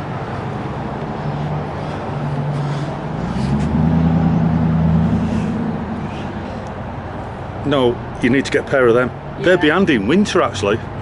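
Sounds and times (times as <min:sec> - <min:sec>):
road traffic: 0:00.0 - 0:11.0
vehicle engine accelerating: 0:00.1 - 0:08.5.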